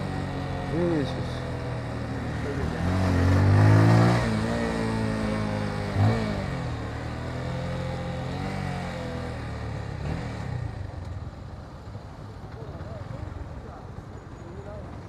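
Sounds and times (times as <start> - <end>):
motorcycle engine revving: 0.0 - 11.3.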